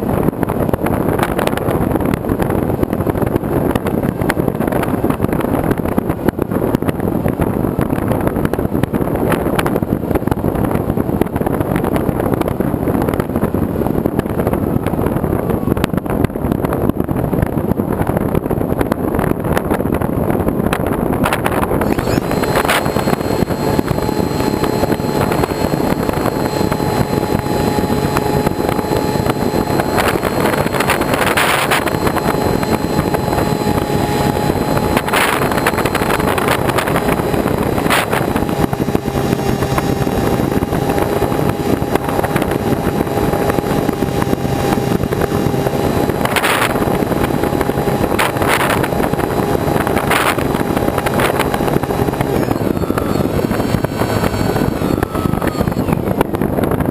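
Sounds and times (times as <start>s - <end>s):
model airplane motor whine: 0.0s - 56.9s
wind rush on microphone: 0.0s - 56.9s.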